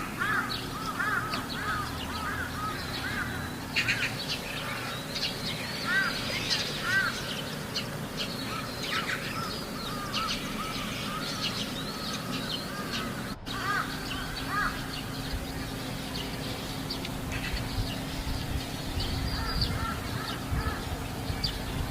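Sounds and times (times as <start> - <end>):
crows cawing: 0.0 - 15.2, 19.2 - 21.0
birds chirping: 0.0 - 21.9.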